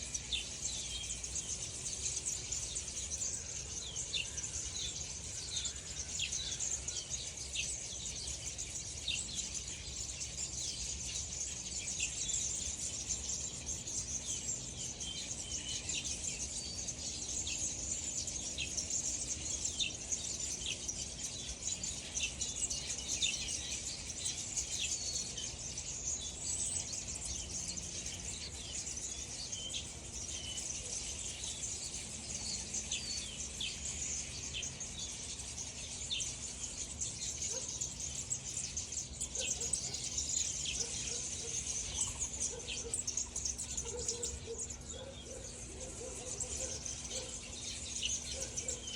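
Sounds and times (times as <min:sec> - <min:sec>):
birds chirping: 0:00.0 - 0:48.9
steady high-pitched hiss: 0:00.0 - 0:48.9.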